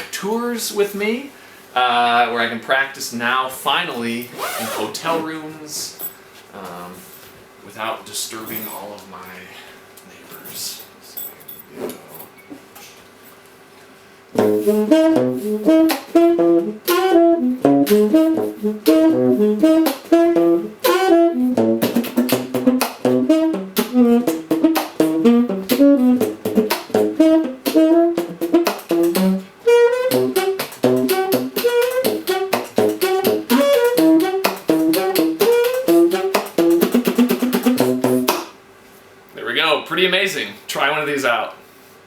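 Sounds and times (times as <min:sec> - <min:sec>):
muted saxophone jazz line: 0:04.3 - 0:05.4, 0:14.3 - 0:38.4.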